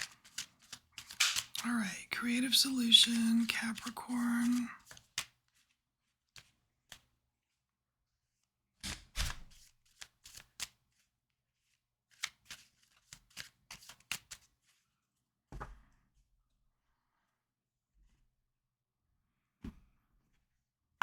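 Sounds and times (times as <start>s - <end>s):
cards being shuffled: 0.0s - 1.7s, 2.4s - 5.6s, 9.5s - 11.0s, 12.1s - 14.5s.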